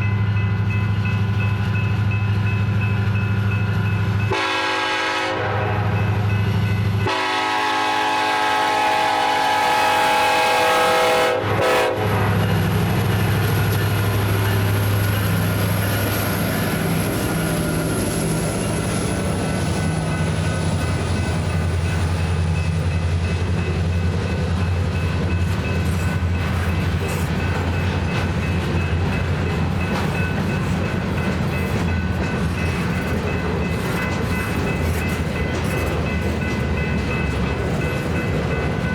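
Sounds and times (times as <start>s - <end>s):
train rolling on rails: 0.0s - 38.9s
locomotive air horn: 4.3s - 6.3s, 7.0s - 12.5s.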